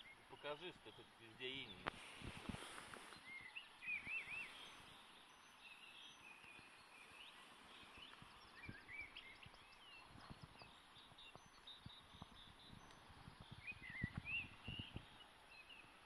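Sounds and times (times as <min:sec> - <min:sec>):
background hiss: 0:00.0 - 0:16.0
songbirds singing: 0:00.0 - 0:16.0.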